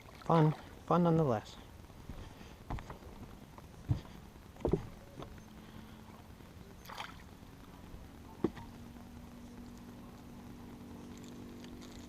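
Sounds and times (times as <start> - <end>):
faint steady hum: 0.0 - 12.0
sharp knocks on boat: 3.9 - 5.3.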